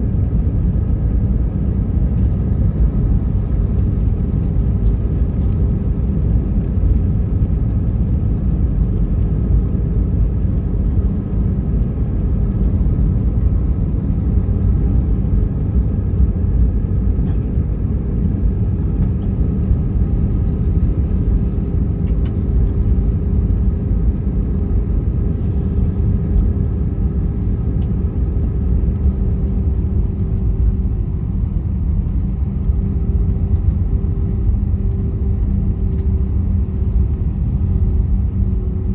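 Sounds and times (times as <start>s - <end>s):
aircraft engine rumble in cabin: 0.0s - 38.9s.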